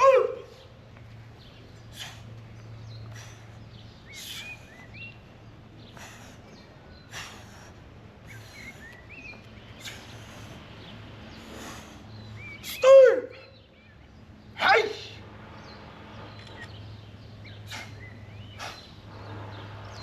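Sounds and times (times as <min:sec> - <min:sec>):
small birds chirping: 0:00.0 - 0:20.0
low hum: 0:14.1 - 0:20.0.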